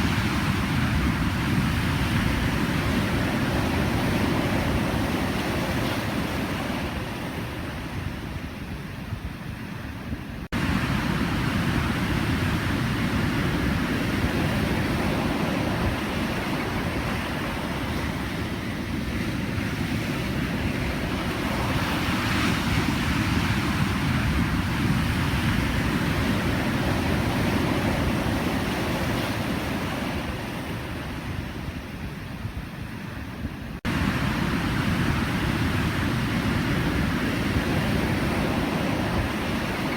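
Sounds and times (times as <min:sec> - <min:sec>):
ocean waves breaking: 0:00.0 - 0:08.5, 0:10.4 - 0:32.2, 0:32.8 - 0:39.9.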